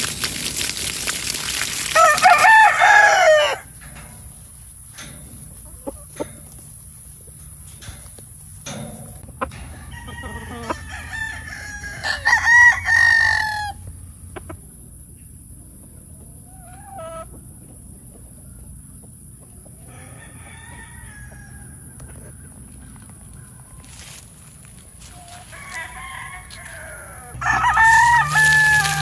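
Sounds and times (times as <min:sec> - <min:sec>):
rooster crowing: 0:02.0 - 0:03.7, 0:09.6 - 0:13.9, 0:19.9 - 0:21.9, 0:25.2 - 0:29.0.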